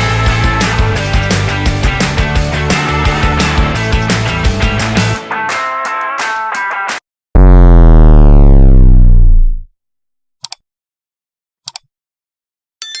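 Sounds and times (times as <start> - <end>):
rock music: 0.0 - 7.0
electronic power-down effect: 7.4 - 9.7.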